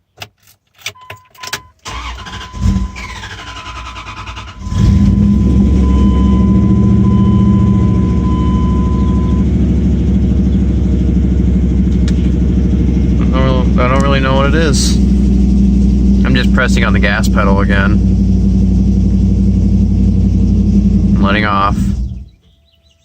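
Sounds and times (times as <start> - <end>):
engine starter cranking: 1.8 - 7.3
engine running loud: 2.5 - 22.4.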